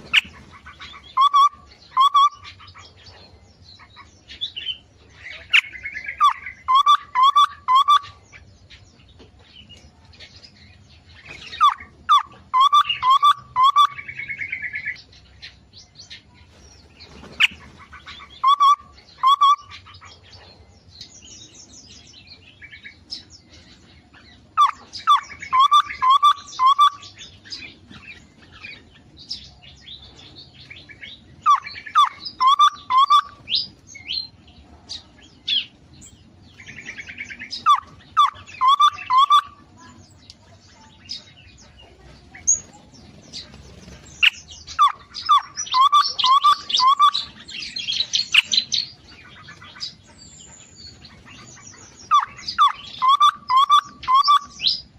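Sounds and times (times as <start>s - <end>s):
birds chirping and twittering: 0.0s - 54.9s.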